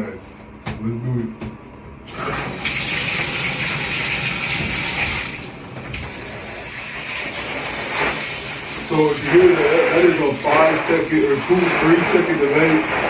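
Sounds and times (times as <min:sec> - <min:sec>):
shower spraying water: 0:02.1 - 0:13.0.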